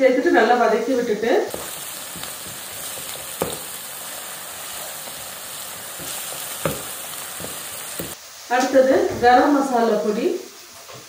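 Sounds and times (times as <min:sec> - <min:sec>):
vegetables sizzling in hot oil: 0:00.8 - 0:11.0
spatula knocking against pan: 0:01.5 - 0:03.7, 0:05.9 - 0:08.2
wooden spatula stirring: 0:01.5 - 0:08.2.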